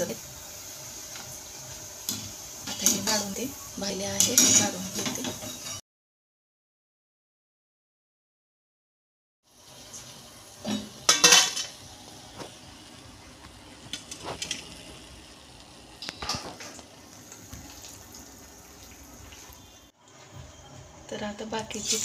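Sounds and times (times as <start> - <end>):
food frying in hot oil: 0.0 - 5.8, 9.5 - 20.0, 21.2 - 22.0
metal spoon scraping a pan: 4.2 - 5.8, 10.6 - 11.8, 21.8 - 22.0.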